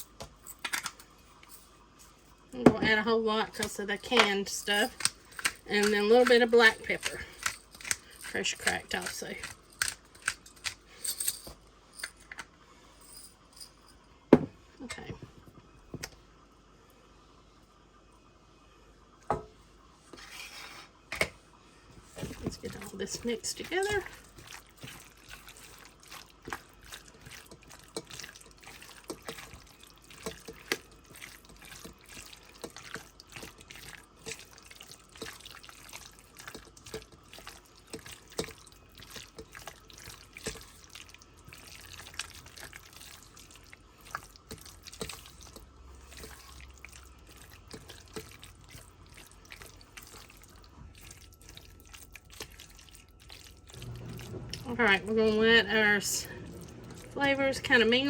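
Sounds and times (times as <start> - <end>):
utensil stirring wet filling: 2.1 - 11.0, 22.0 - 58.0.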